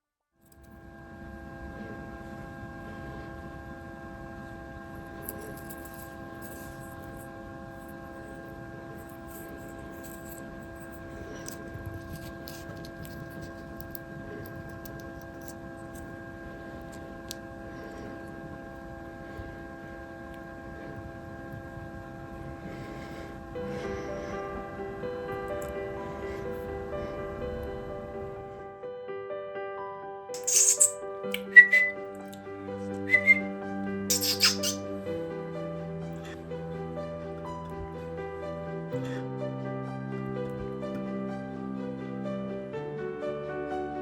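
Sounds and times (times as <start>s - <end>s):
electrical hum with low rumble: 0.4s - 28.8s
faint ticks and scratches: 5.1s - 19.6s.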